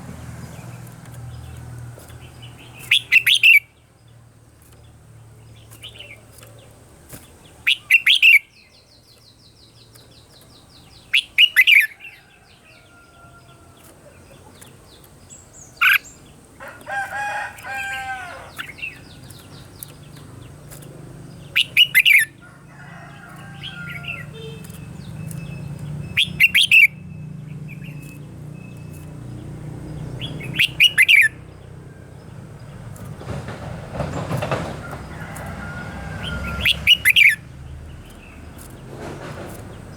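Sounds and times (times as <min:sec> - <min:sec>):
birds calling faintly: 0:00.0 - 0:39.9
bulbul singing: 0:00.0 - 0:39.9
high bird trill: 0:02.5 - 0:03.7, 0:07.5 - 0:09.3, 0:10.6 - 0:13.7, 0:15.4 - 0:20.0, 0:21.4 - 0:29.1, 0:30.2 - 0:32.1, 0:35.2 - 0:37.5.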